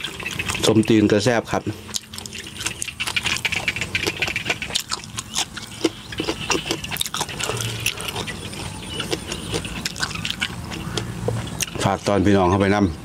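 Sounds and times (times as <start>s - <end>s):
chewing crunchy food: 0.0s - 12.1s
wet mouth sounds: 1.7s - 11.8s.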